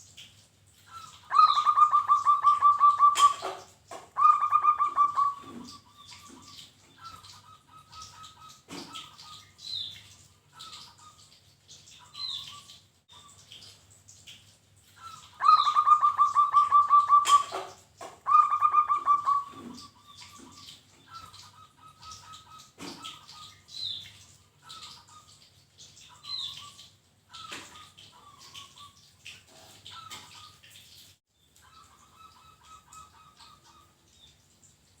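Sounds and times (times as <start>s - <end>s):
dove cooing: 0.9s - 8.2s, 15.0s - 23.4s
high bird chirps: 1.0s - 3.5s, 4.2s - 6.4s, 15.1s - 17.6s, 18.3s - 20.4s.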